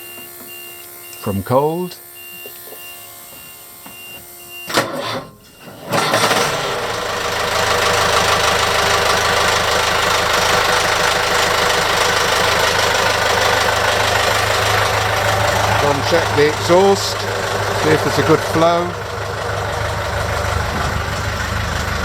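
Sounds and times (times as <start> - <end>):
diesel engine starting and idling: 0.0 - 22.0.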